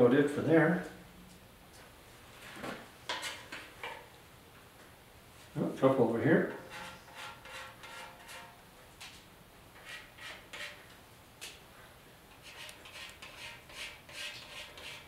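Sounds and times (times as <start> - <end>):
scratchy strokes on metal tank: 6.5 - 8.6, 9.8 - 10.9, 12.3 - 15.0.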